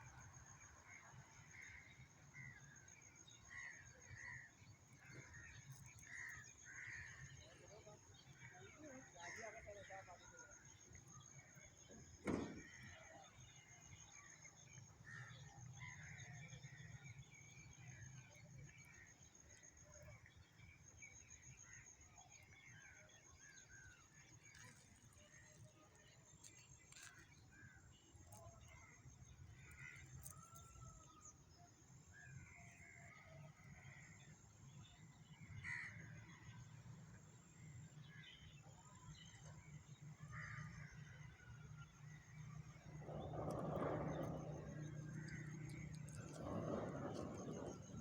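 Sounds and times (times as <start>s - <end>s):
dull thump: 12.2s - 13.0s
faint birds chirping: 38.0s - 48.0s.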